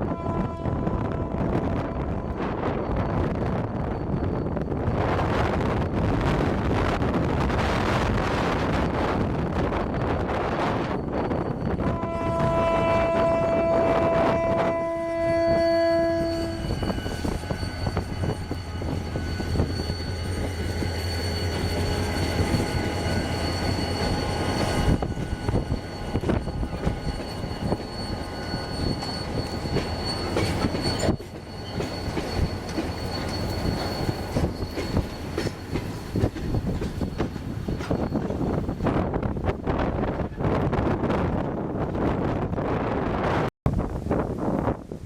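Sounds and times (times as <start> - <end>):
locomotive horn blasts: 0.0 - 2.6, 11.8 - 19.0
locomotive engine droning: 0.0 - 39.1
high wheel squeal: 8.6 - 14.6, 15.4 - 39.2
train wheels clattering over rail joints: 29.2 - 38.8.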